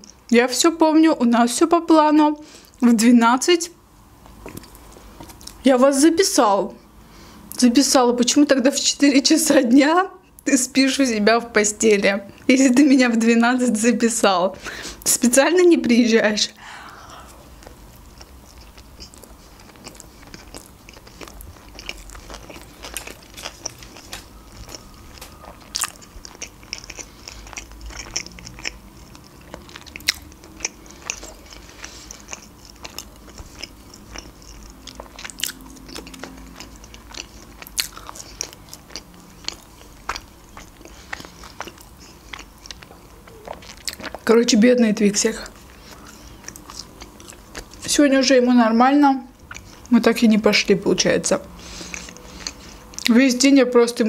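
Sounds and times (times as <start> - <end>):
chewing with wet mouth clicks: 4.2 - 5.6, 17.6 - 44.4, 45.4 - 48.0, 49.3 - 50.1, 51.4 - 53.2.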